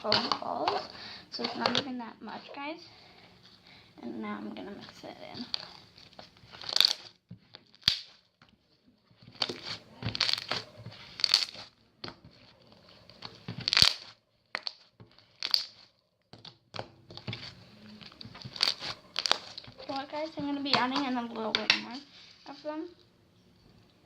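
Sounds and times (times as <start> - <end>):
slime being squished: 4.7 - 8.4, 9.1 - 21.9.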